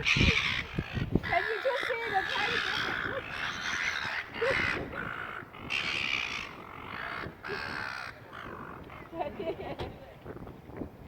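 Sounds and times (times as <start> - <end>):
seagulls squawking: 0.0 - 9.8.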